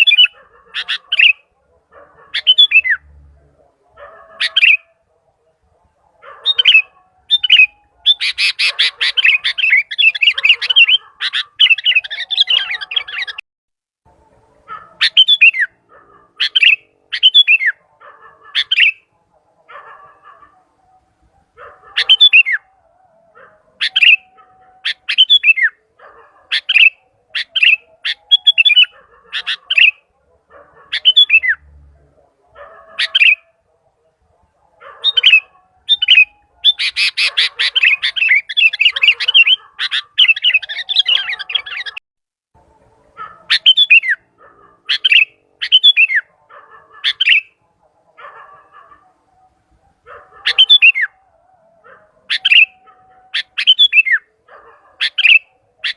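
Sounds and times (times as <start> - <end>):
bulbul calling: 0.0 - 3.1, 4.2 - 5.0, 6.3 - 13.4, 14.7 - 19.2, 21.6 - 22.7, 23.8 - 30.1, 30.7 - 31.6, 32.9 - 33.6, 34.8 - 42.0, 43.3 - 46.3, 47.0 - 47.6, 50.1 - 51.2, 52.2 - 55.9.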